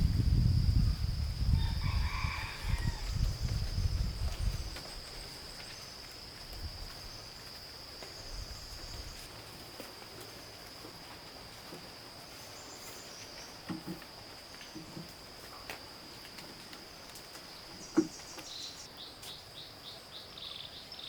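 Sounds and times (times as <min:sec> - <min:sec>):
low rumbling noise: 0:00.0 - 0:01.8.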